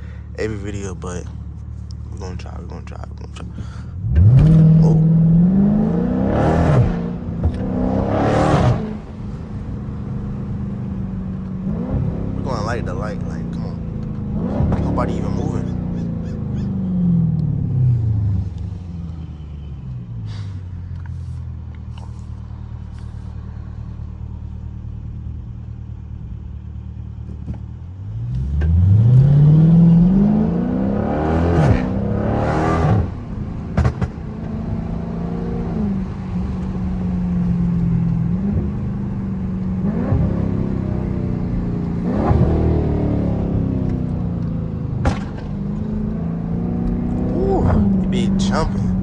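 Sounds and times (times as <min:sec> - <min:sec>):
car engine revving: 0:00.0 - 0:49.0
exhaust crackle and pops: 0:00.7 - 0:05.6, 0:06.4 - 0:11.6, 0:12.4 - 0:17.8, 0:20.8 - 0:30.2, 0:31.4 - 0:49.0.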